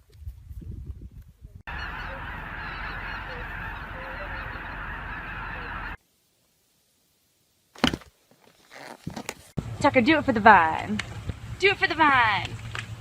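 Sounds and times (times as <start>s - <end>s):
many birds calling: 1.7s - 6.0s.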